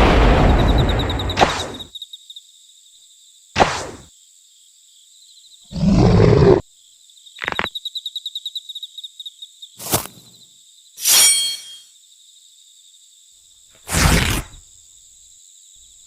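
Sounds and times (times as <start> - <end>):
night insects chirping: 0.0 - 16.0
low animal roar: 5.7 - 6.6.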